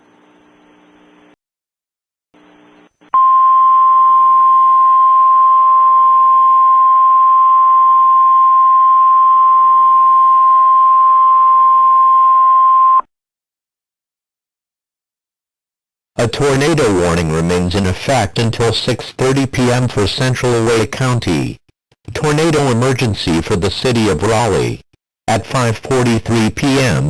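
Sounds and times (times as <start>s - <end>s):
high emergency alert tone: 3.2s - 13.1s.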